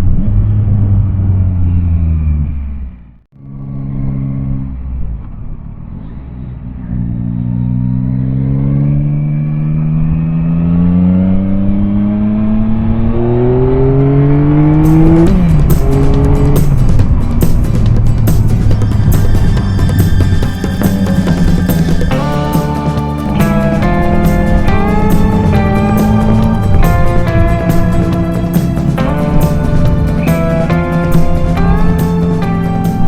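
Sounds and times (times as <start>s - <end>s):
motorcycle engine accelerating: 0.0s - 33.0s
music with drum beat: 14.8s - 33.0s.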